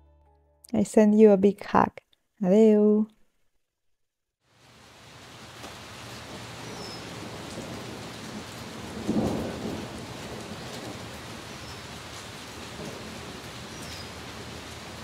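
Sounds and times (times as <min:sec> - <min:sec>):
rain falling on leaves: 0:04.4 - 0:15.0
thunder rumble: 0:05.4 - 0:15.0.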